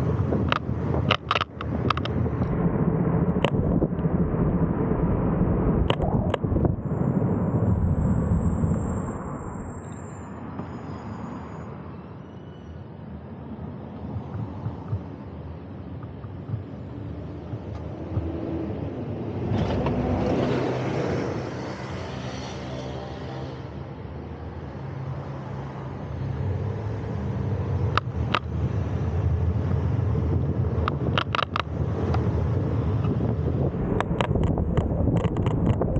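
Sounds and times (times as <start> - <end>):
road traffic noise: 0.0 - 35.9
sharp clicks: 0.4 - 2.2, 30.8 - 32.2
motor vehicle passing: 16.0 - 23.8.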